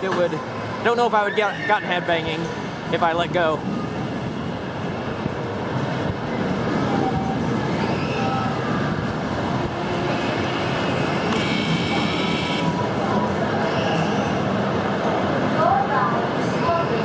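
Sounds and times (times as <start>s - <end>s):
roller coaster train rumbling: 0.0s - 12.0s.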